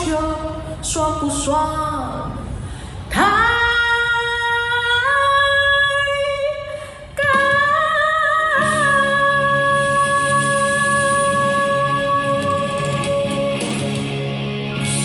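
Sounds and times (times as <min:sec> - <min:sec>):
woman singing: 0:03.1 - 0:14.0
instrumental backing music: 0:08.6 - 0:15.0.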